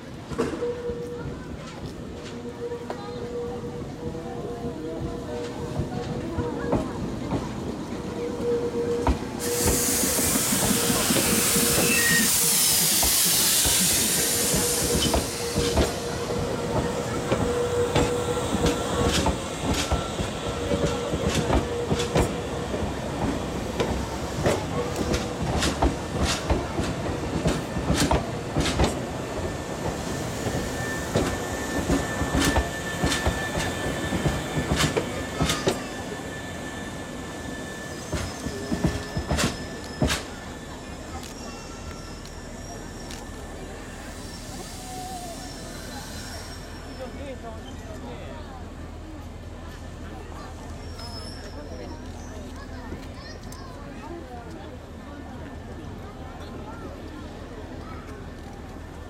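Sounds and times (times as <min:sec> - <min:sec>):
electric train rolling slowly: 0:00.0 - 0:59.0
loud air hiss: 0:09.4 - 0:20.7.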